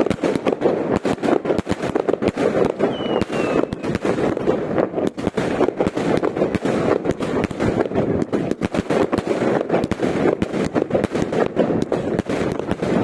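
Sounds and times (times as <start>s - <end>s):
firecrackers crackling: 0.0s - 13.0s
falling firework whistle: 2.8s - 4.2s.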